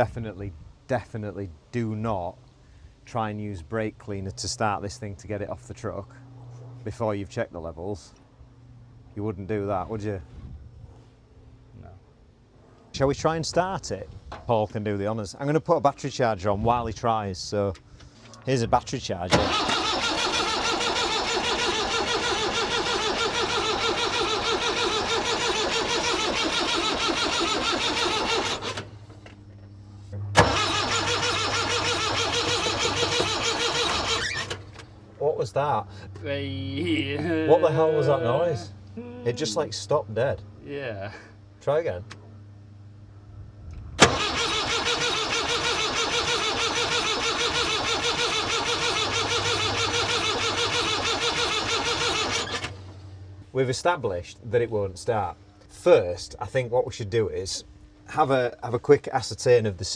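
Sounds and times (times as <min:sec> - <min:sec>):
diesel engine cranking: 0:19.2 - 0:29.4, 0:30.2 - 0:35.0, 0:44.0 - 0:53.1
starter motor click: 0:19.3 - 0:29.0, 0:30.4 - 0:34.9, 0:44.0 - 0:52.9.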